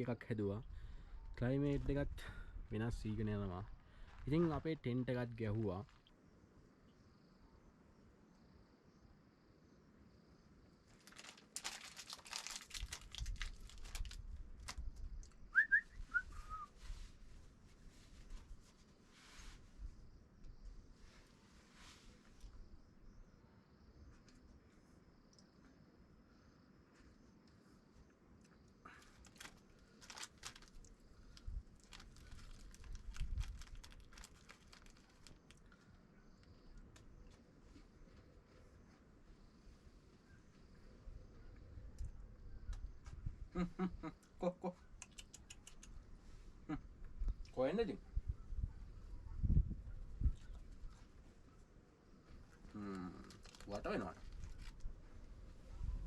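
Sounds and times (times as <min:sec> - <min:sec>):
rustling and crinkling: 0:10.9 - 0:15.4, 0:16.3 - 0:19.9, 0:28.9 - 0:39.2, 0:52.3 - 0:55.6
short rising whistled chirps: 0:15.5 - 0:16.9.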